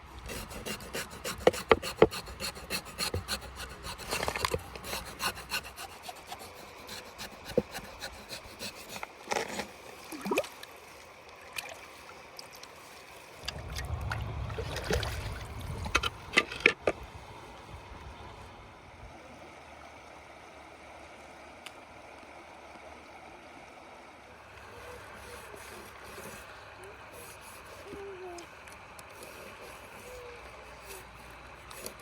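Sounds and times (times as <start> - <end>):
scraping on hard surface: 0.3 - 9.8
low rumble: 13.4 - 16.4.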